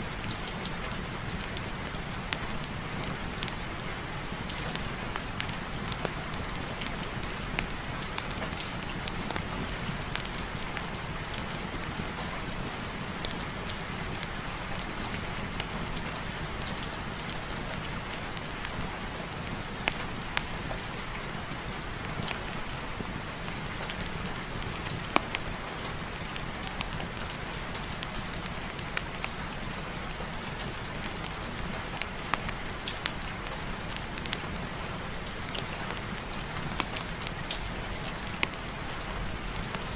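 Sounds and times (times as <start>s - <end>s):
sharp ticks and pops: 23.7s - 39.8s.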